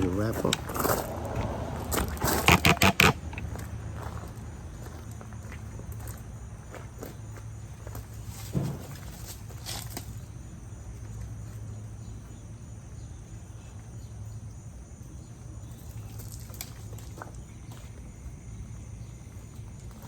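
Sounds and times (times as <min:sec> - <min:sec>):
low hum: 0:00.0 - 0:02.5
insect drone: 0:00.0 - 0:20.0.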